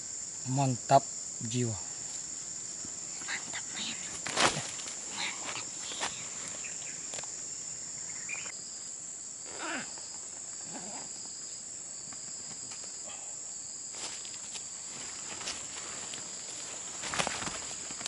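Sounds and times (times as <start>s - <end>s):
crickets chirping: 0.0s - 18.0s
soft rustles and clicks: 14.0s - 18.0s.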